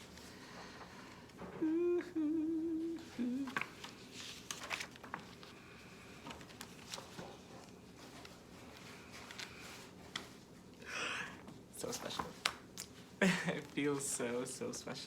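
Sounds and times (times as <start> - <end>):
person humming: 1.4 - 3.8
paper rustling and clicking: 3.3 - 10.7, 11.8 - 14.2.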